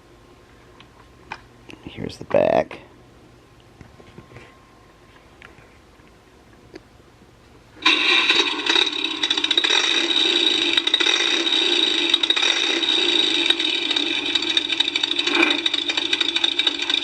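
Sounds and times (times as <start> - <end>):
toy electronic engine sound: 7.8 - 17.0.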